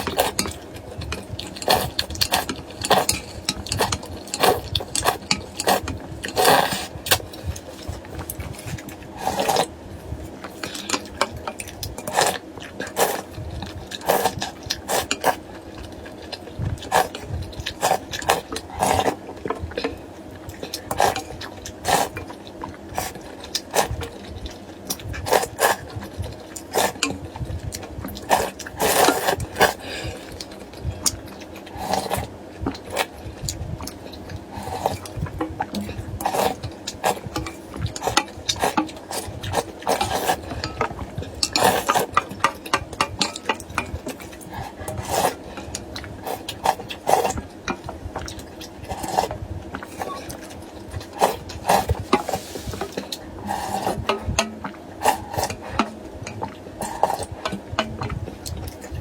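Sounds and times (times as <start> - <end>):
slurping noodles and broth: 0.0 - 15.5, 16.8 - 24.2, 24.9 - 30.9, 31.7 - 59.0
chewing: 0.0 - 59.0.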